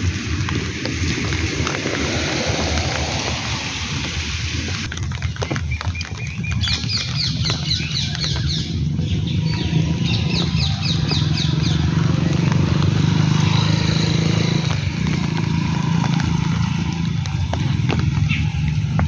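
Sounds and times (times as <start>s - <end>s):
low engine hum: 0.0s - 4.9s, 8.2s - 19.0s
rain hiss: 0.0s - 4.9s, 9.9s - 18.1s
bird chirping: 5.7s - 14.4s.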